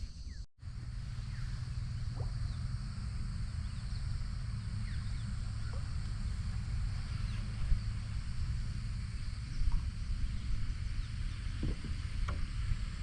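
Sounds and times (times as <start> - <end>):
high insect hiss: 0.0 - 13.0
low rumble: 0.6 - 13.0
birds whistling falling calls: 1.1 - 13.0.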